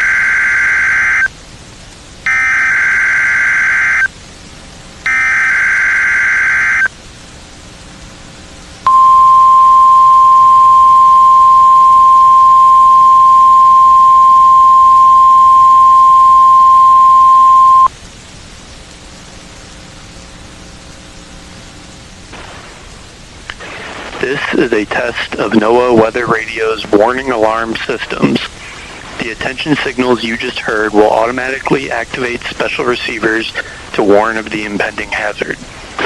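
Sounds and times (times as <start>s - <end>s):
steady warning alarm tone: 0.0s - 1.3s, 2.2s - 4.1s, 5.0s - 6.9s, 8.8s - 17.9s
harsh buzzing digital bursts: 2.2s - 4.1s, 5.0s - 6.9s.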